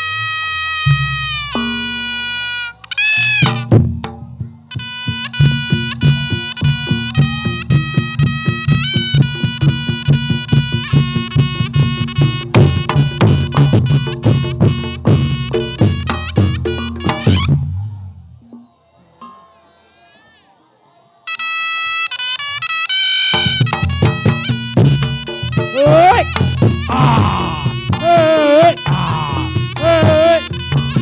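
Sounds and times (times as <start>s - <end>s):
reedy wind instrument melody: 0.0s - 3.8s, 4.7s - 17.5s, 21.3s - 31.0s
fast drum rhythm: 3.0s - 17.5s, 23.4s - 31.0s.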